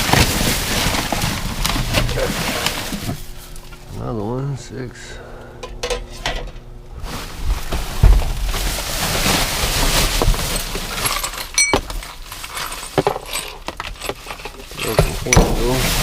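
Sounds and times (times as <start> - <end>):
rustling through rubbish: 0.0 - 4.1, 6.9 - 16.0
dishware clinking: 11.2 - 12.0.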